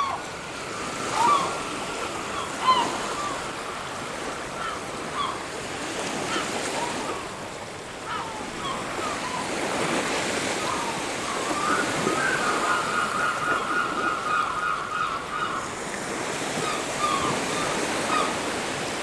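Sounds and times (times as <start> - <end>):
birds calling: 8.0 - 15.8.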